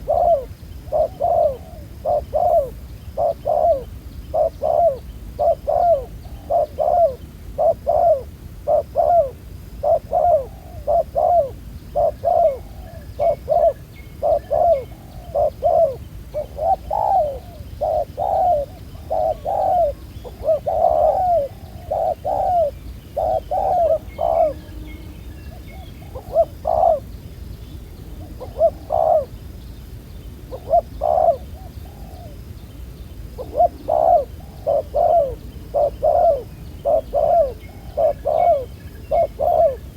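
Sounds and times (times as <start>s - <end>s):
dove cooing: 0.0s - 24.9s, 25.5s - 27.1s, 28.1s - 29.4s, 30.5s - 32.5s, 33.3s - 39.9s
small bird chirping: 33.4s - 39.9s.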